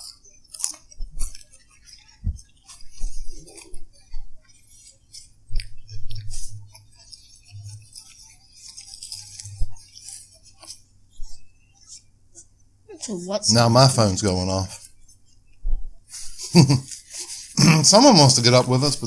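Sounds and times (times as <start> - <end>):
crackly rustling and clicking: 0.0 - 12.8.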